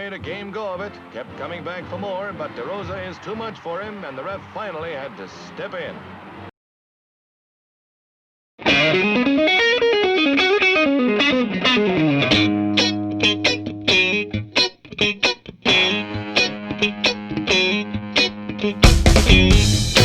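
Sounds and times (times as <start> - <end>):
distorted electric guitar: 8.6 - 20.0.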